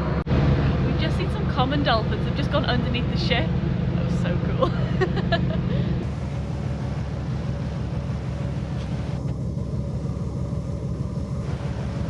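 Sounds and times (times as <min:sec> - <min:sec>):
ferry engine noise: 0:00.0 - 0:12.0.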